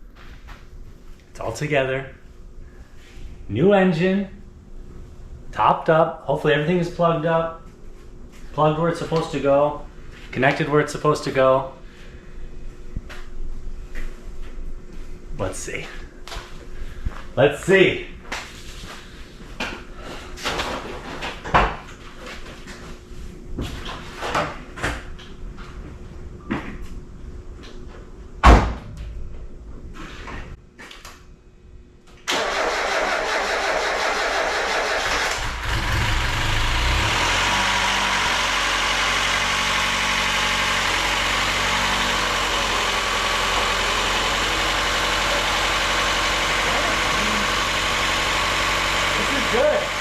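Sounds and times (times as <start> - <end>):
car engine starting and idling: 32.3 - 50.0.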